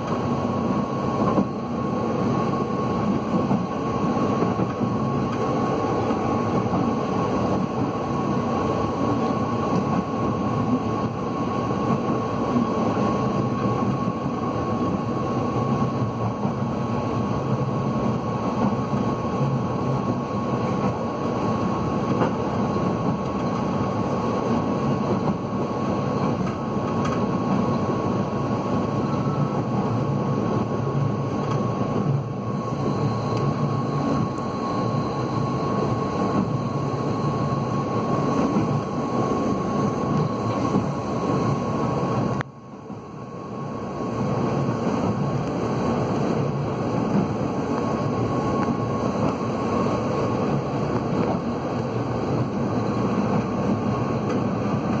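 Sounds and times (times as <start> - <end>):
train rumbling at speed: 0.0 - 55.0.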